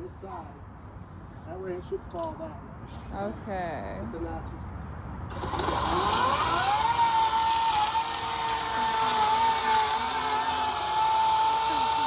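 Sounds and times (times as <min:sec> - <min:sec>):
chain cutting into wood: 0:05.3 - 0:12.0
electric chainsaw whining: 0:05.3 - 0:12.0.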